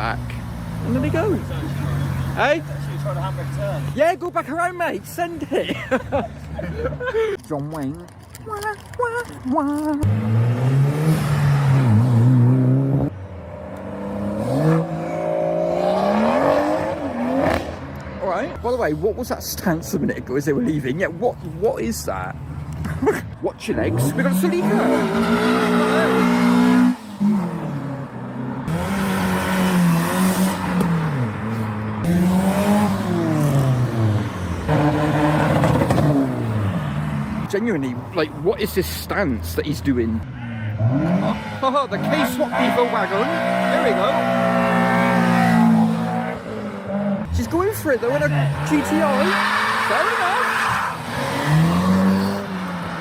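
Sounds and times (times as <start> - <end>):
car engine at high revs: 10.0 - 18.2, 23.8 - 37.5, 40.6 - 53.0.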